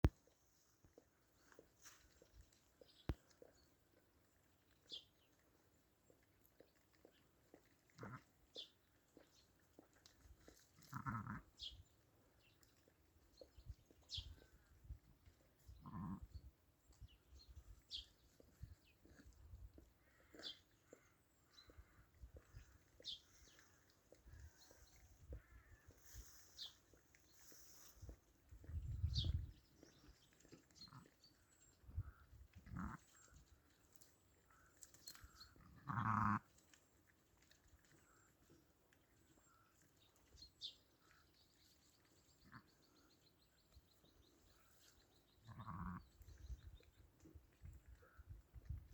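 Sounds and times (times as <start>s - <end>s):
sheep or goat bleating: 10.8s - 11.5s, 15.8s - 16.3s, 35.7s - 36.5s
sheep moving and rustling: 21.6s - 38.6s.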